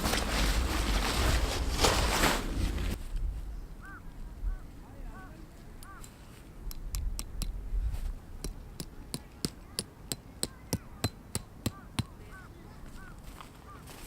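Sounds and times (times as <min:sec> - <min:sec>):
hammer striking stake: 0:06.7 - 0:07.6, 0:08.4 - 0:12.2.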